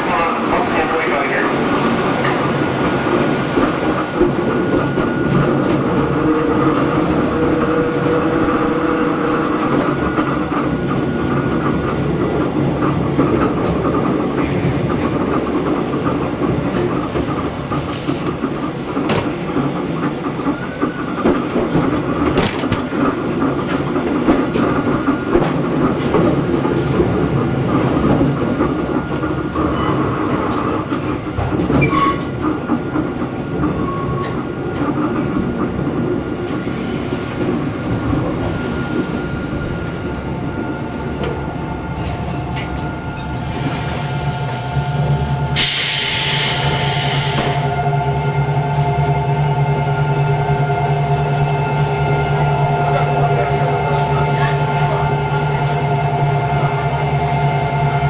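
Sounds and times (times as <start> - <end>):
wheels rumbling on rail: 0.0 - 58.0
rail-joint clicks: 1.4 - 47.8.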